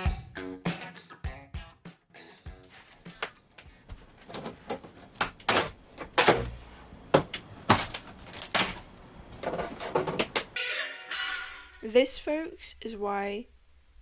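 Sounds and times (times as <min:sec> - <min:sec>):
knocks bangs and scrapes in room: 0:04.3 - 0:10.6.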